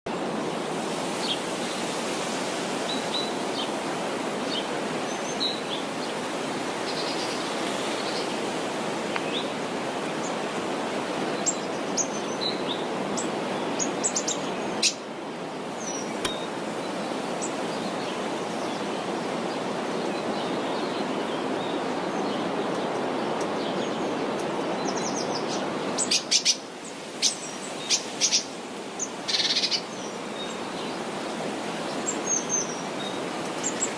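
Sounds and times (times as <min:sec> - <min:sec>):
small birds chirping: 0:11.3 - 0:15.0, 0:15.8 - 0:31.2, 0:31.8 - 0:33.9.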